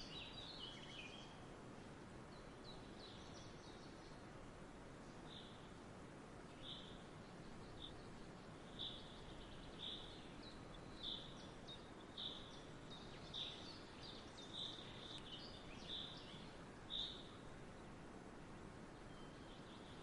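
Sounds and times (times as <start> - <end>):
bird chirping: 0.0 - 1.4, 6.5 - 17.4, 19.0 - 20.0
outdoor background hiss: 0.0 - 20.0.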